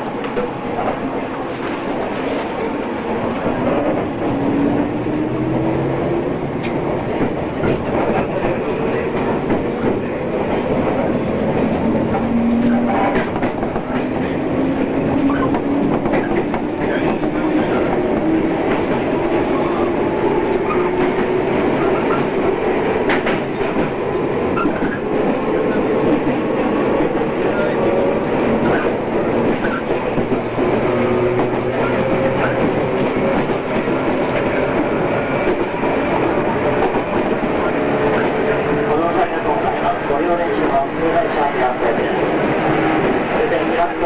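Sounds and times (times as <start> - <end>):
train rolling on rails: 0.0 - 44.0.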